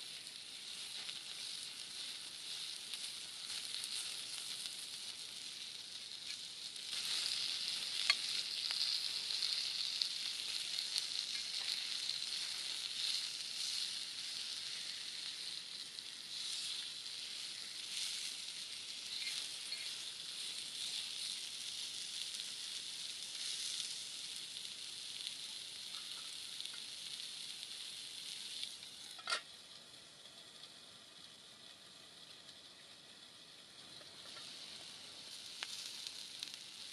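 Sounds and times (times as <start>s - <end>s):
chicken sizzling over campfire: 0.0s - 36.9s.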